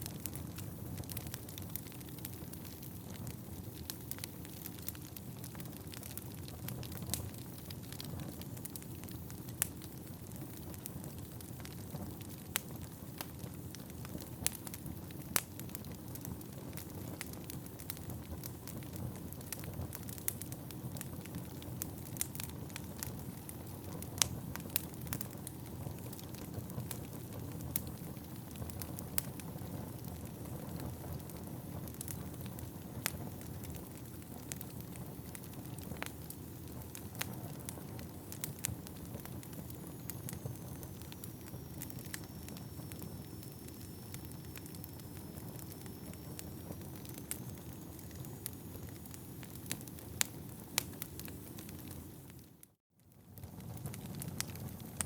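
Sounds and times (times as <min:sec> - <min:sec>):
fire crackling and popping: 0:00.0 - 0:55.0
faint high whistle: 0:39.7 - 0:49.2.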